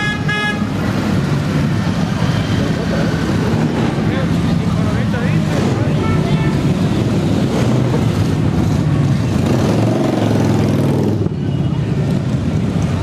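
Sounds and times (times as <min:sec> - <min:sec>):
motorcycle engines running: 0:00.6 - 0:13.0
motorcycle engine revving: 0:06.7 - 0:11.4.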